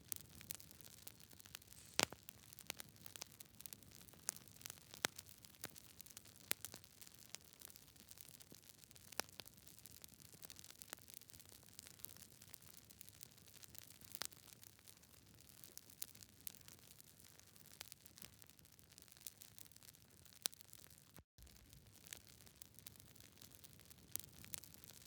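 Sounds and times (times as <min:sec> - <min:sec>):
campfire crackling and popping: 0:00.2 - 0:08.6, 0:21.4 - 0:25.0
soft hiss of fire: 0:01.5 - 0:02.4.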